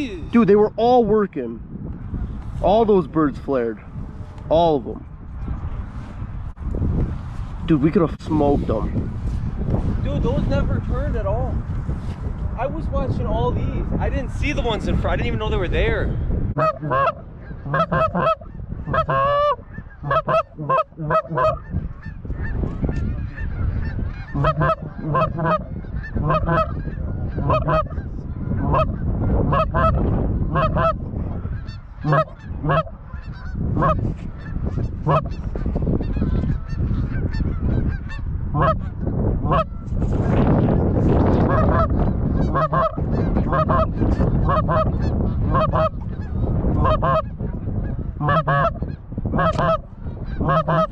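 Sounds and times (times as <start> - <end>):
steady low rumble: 0.0 - 50.9
geese honking: 16.6 - 39.9, 41.3 - 50.9.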